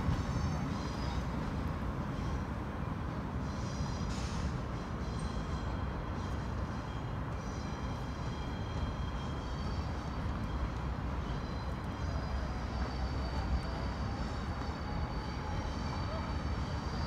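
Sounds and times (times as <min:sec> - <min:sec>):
city traffic noise: 0:00.0 - 0:17.0
distant electric train rumble: 0:00.0 - 0:17.0.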